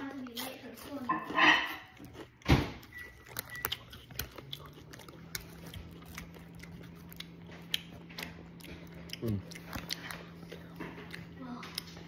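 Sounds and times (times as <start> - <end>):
crunchy snack being chewed: 0.0 - 12.0.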